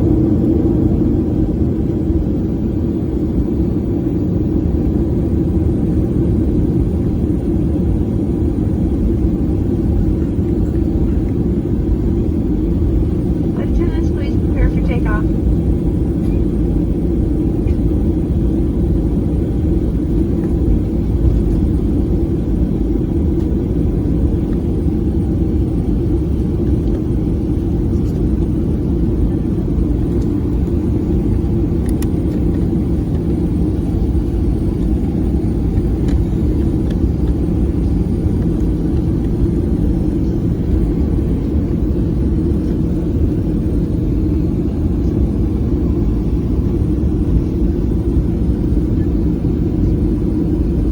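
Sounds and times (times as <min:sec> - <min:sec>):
airplane cabin engine rumble: 0:00.0 - 0:50.9.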